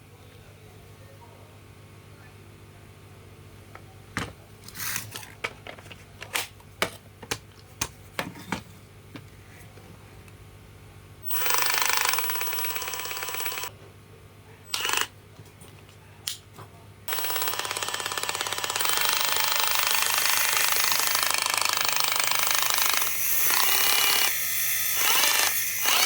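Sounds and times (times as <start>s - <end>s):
handling clicks and knocks: 3.8s - 9.4s.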